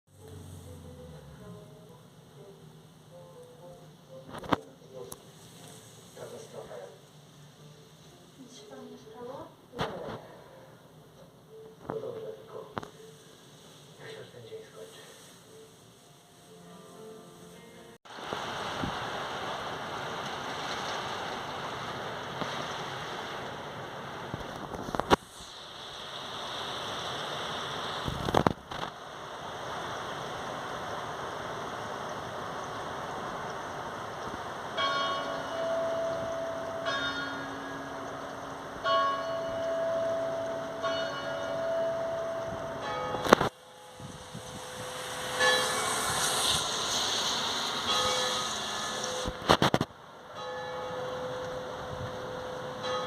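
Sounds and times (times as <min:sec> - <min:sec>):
steady background hiss: 0:00.2 - 0:53.0
heavy rain pouring: 0:18.1 - 0:35.5, 0:42.6 - 0:50.2
church bell tolling: 0:34.7 - 0:49.2, 0:50.3 - 0:53.0.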